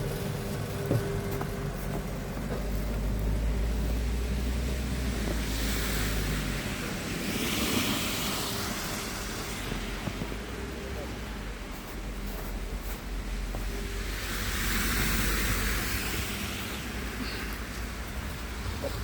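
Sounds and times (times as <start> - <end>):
low traffic engine hum: 0.0 - 19.0
tyre hiss of passing vehicle: 3.7 - 10.8, 13.2 - 19.0.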